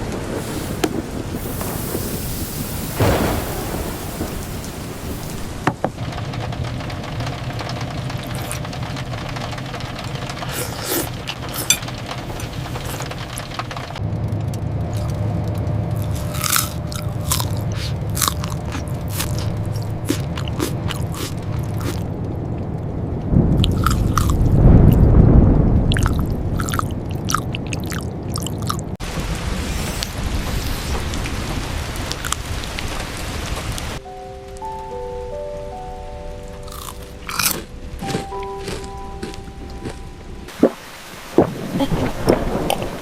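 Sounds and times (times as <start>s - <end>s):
deep rumble: 0.0s - 43.0s
steady low hum: 11.1s - 31.2s
crisp crunching clicks: 14.5s - 22.1s, 36.7s - 40.1s.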